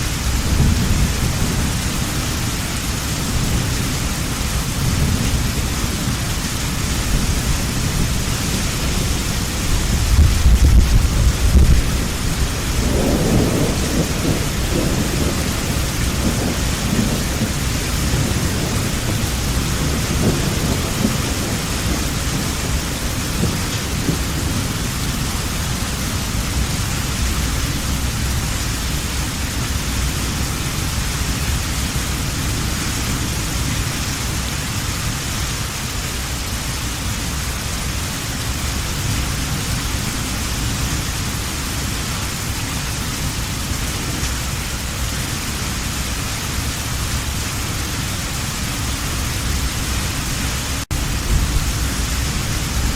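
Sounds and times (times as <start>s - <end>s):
thunder rumbling: 0.0s - 34.7s, 46.6s - 52.9s
heavy rain falling: 0.0s - 52.9s.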